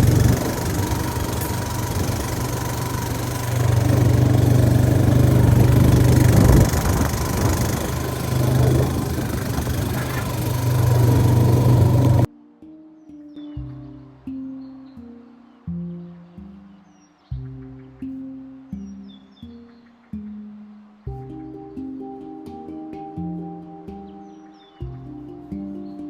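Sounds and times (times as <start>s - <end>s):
vehicle engine droning: 0.0s - 12.3s.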